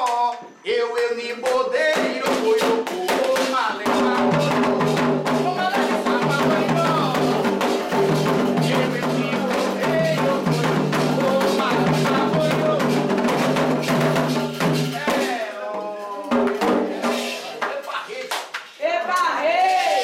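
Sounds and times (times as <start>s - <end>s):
sung chanting: 0.0s - 18.3s
hand drums beaten in fast rhythm: 1.9s - 15.5s, 16.3s - 17.7s
struck bell percussion: 3.4s - 15.4s.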